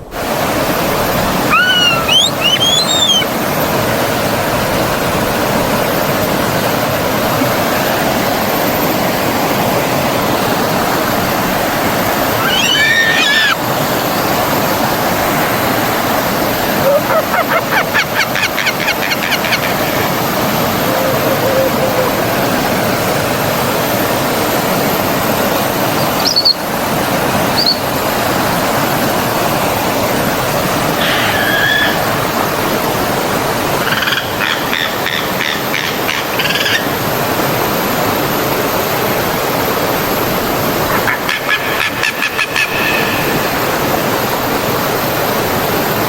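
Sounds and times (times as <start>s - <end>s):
forest stream rushing: 0.0s - 46.0s
birds chirping and trilling: 1.5s - 3.3s, 12.3s - 13.6s, 17.4s - 22.3s, 27.5s - 27.9s.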